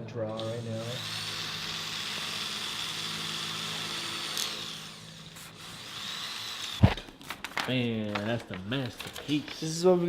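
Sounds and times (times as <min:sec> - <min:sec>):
power drill running: 0:00.4 - 0:07.0.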